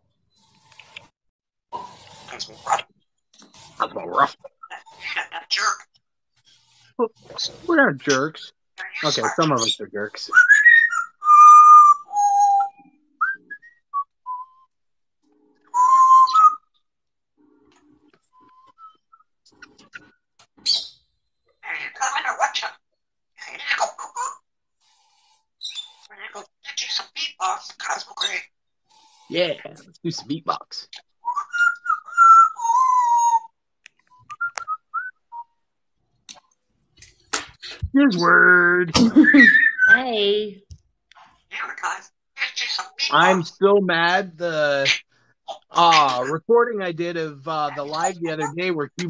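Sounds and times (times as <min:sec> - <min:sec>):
parrot chirping: 0:01.7 - 0:14.7, 0:15.6 - 0:16.8, 0:18.3 - 0:35.7, 0:37.5 - 0:40.1, 0:41.3 - 0:43.5, 0:44.5 - 0:46.4, 0:47.5 - 0:48.9
parrot whistling: 0:08.8 - 0:14.7, 0:15.6 - 0:16.8, 0:18.3 - 0:19.3, 0:31.0 - 0:35.6, 0:39.2 - 0:40.0.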